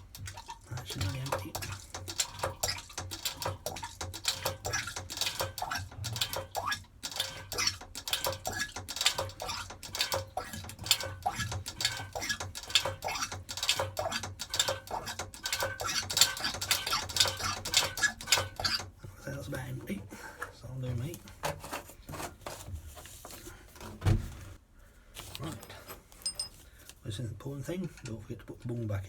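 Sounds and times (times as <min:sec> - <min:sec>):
hand pump clicking and clacking: 0:00.0 - 0:22.7.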